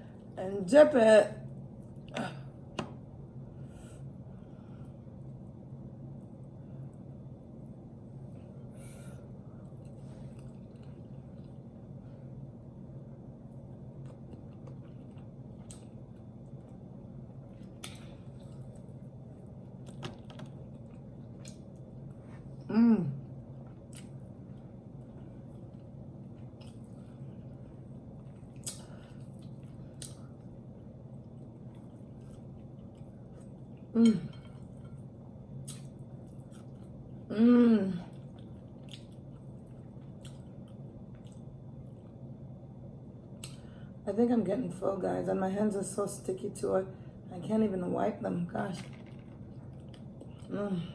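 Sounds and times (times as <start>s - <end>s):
steady low hum: 0.0s - 50.9s
woman chewing food: 9.3s - 12.0s, 13.4s - 37.3s, 38.0s - 42.4s, 48.9s - 50.5s
person chewing chicken: 14.0s - 16.3s, 38.1s - 42.1s
woman humming mm: 22.6s - 23.3s, 33.9s - 34.4s, 37.3s - 38.2s.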